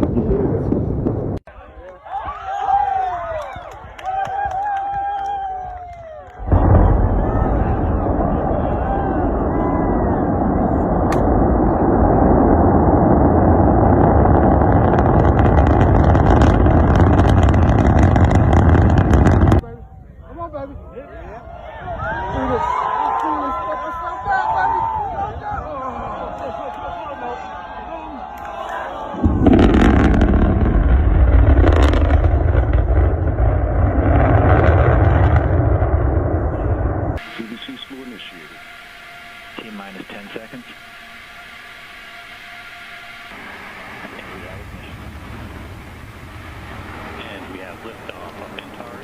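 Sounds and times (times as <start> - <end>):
rocket roar: 4.6 - 19.6, 27.4 - 49.0
rocket crackling: 5.9 - 19.7, 29.1 - 49.0.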